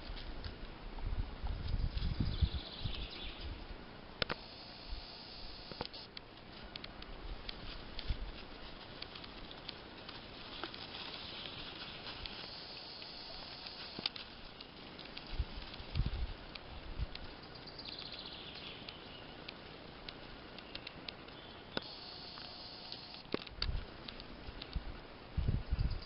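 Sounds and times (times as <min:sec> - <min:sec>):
rustling in dry leaves: 0:00.0 - 0:25.6
high chirring hiss: 0:04.2 - 0:06.1, 0:09.0 - 0:16.5, 0:17.3 - 0:23.3.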